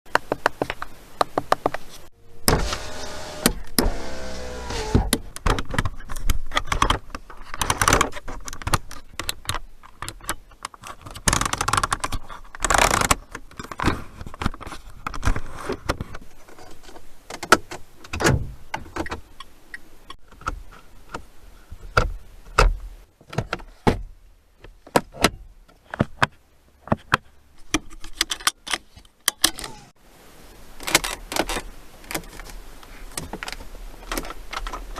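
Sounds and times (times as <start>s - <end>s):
power window motor whine: 2.5s - 5.1s.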